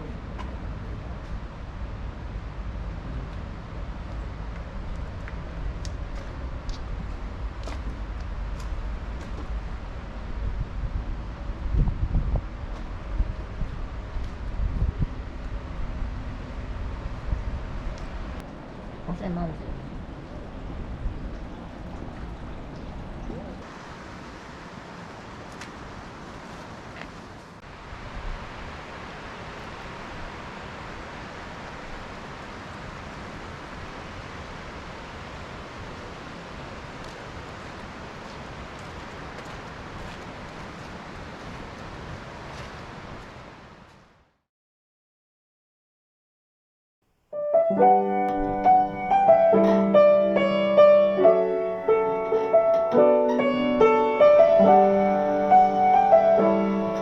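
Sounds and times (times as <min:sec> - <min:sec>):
water rushing: 0:18.2 - 0:27.0, 0:27.6 - 0:43.8, 0:47.7 - 0:57.0
gentle solo piano music: 0:47.4 - 0:57.0.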